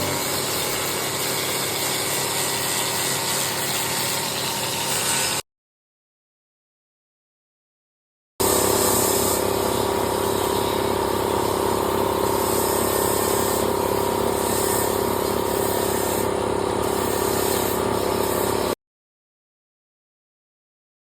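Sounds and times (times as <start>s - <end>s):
power tool motor whine: 0.0s - 5.4s.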